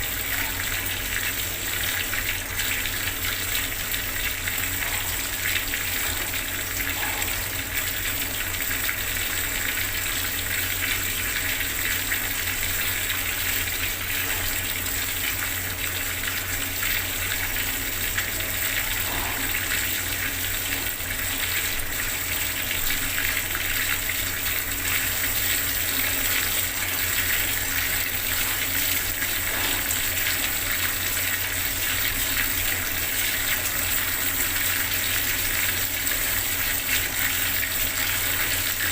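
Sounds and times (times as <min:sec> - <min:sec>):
water tap running: 0:00.0 - 0:38.9.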